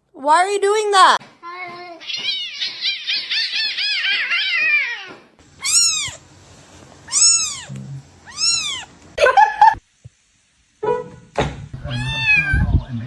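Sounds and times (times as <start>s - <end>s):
cat meowing: 2.0s - 6.3s, 7.0s - 9.2s, 11.8s - 12.7s.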